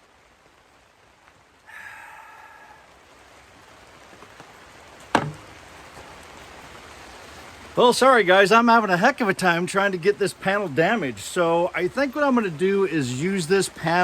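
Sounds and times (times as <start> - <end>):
light rain: 0.0 - 14.0
hard strike on panel: 5.1 - 5.5.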